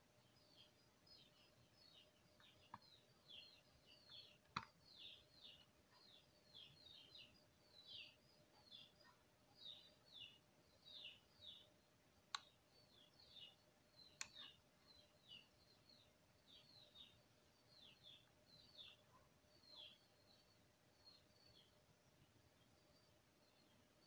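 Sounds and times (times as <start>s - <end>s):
faint bird chirping: 0.0s - 24.0s
computer mouse clicks: 4.4s - 4.8s, 12.3s - 12.6s, 14.1s - 14.5s.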